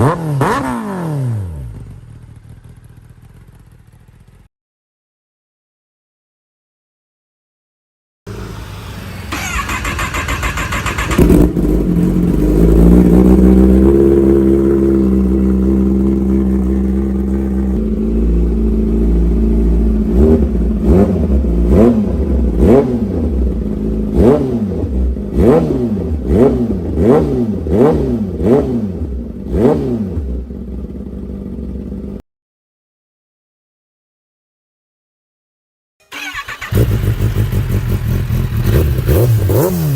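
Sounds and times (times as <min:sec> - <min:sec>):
motorcycle engine revving: 0:00.0 - 0:04.5, 0:08.3 - 0:32.2, 0:36.1 - 0:39.9
motorcycle engine cranking: 0:09.2 - 0:12.0, 0:36.0 - 0:39.9.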